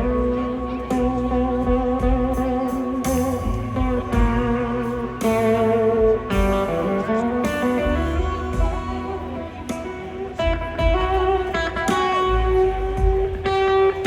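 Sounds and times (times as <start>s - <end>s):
electric guitar sustained notes: 0.0s - 14.0s
live blues band: 0.0s - 14.0s.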